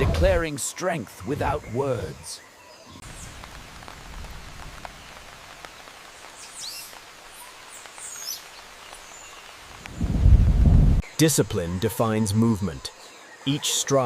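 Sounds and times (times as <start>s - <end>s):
light rain hiss: 0.0s - 14.0s.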